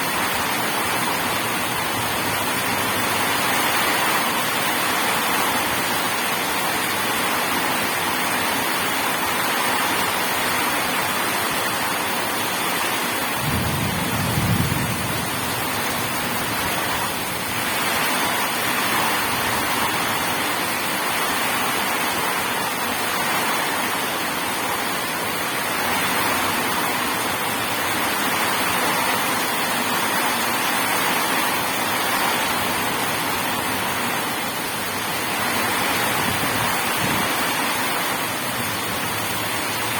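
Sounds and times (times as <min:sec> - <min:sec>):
heavy rain: 0:00.0 - 0:39.9
thunder rumble: 0:13.4 - 0:19.8.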